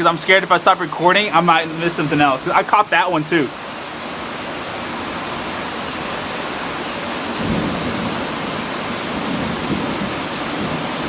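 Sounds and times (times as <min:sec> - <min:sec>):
steady rain: 0:00.0 - 0:11.0
thunder rumbling: 0:07.2 - 0:11.0.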